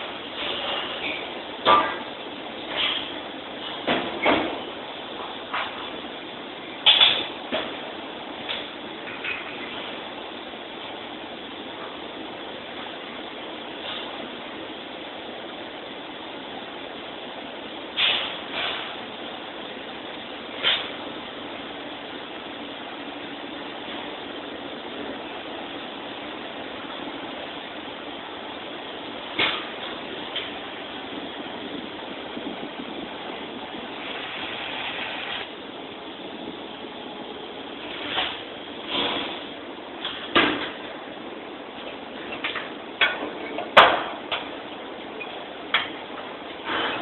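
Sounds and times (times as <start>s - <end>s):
steady hiss: 0.0s - 47.0s
welding arc hissing: 33.8s - 35.5s.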